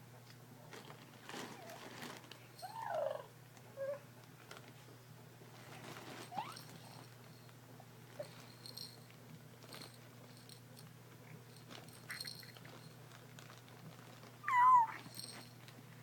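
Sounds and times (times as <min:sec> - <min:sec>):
faint soft clicks and rustles: 0:00.2 - 0:16.0
cat meowing: 0:14.4 - 0:15.1.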